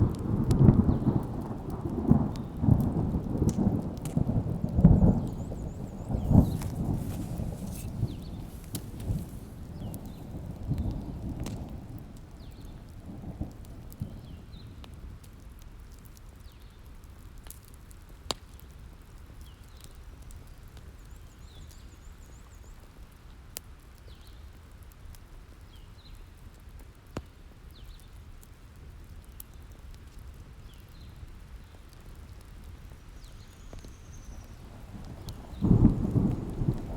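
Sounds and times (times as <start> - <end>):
thunder rolling: 0.0 - 14.6, 34.3 - 36.9
rain hiss: 0.0 - 25.1, 30.2 - 36.9
wood fire crackling: 0.0 - 36.9
loud sharp fire pops: 0.1 - 15.4, 33.2 - 36.9.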